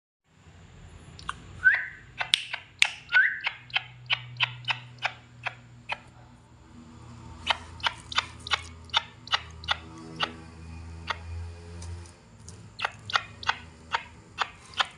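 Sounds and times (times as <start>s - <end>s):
bird of prey calling: 1.2s - 6.0s, 7.4s - 10.4s, 12.8s - 14.9s.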